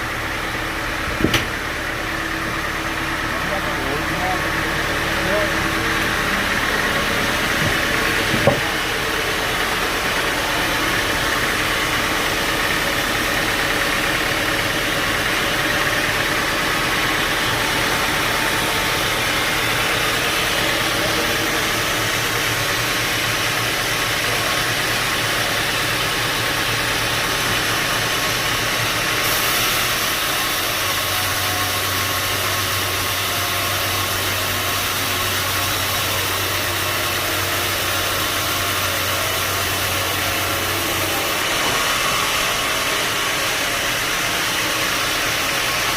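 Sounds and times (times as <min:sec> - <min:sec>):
sawmill machinery running: 0:00.0 - 0:45.9
sharp knock: 0:01.2 - 0:01.5.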